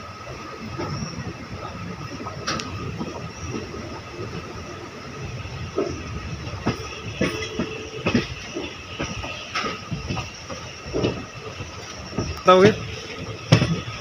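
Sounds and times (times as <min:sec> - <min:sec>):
train wheels rumbling: 0:00.0 - 0:14.0
wheel clacks and knocks: 0:05.6 - 0:14.0.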